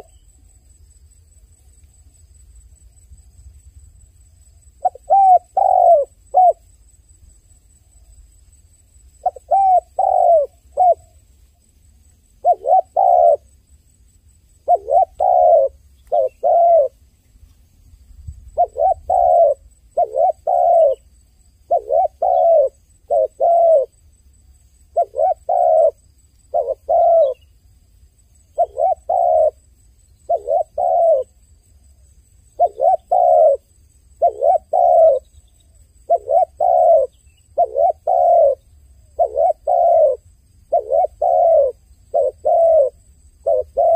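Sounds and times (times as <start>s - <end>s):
dove cooing: 4.8s - 6.6s, 9.2s - 11.2s, 12.4s - 13.5s, 14.6s - 17.0s, 18.5s - 21.1s, 21.7s - 24.0s, 24.9s - 27.4s, 28.6s - 31.4s, 32.6s - 43.9s.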